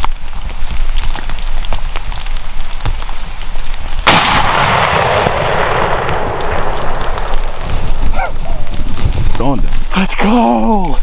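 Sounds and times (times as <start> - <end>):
shotgun blast with echo: 4.0 - 7.2.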